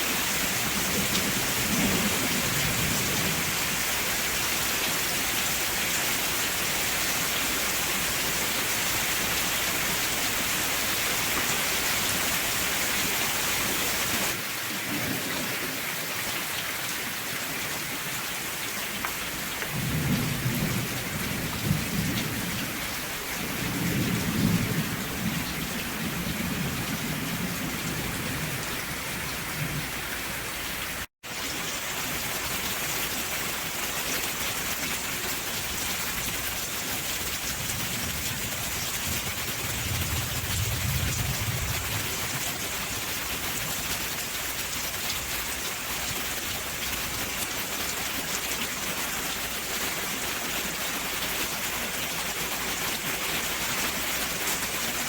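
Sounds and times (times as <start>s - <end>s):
heavy rain hissing: 0.0s - 15.8s, 16.5s - 55.0s
thunder rumbling: 0.4s - 3.8s, 19.7s - 30.2s, 37.3s - 42.8s.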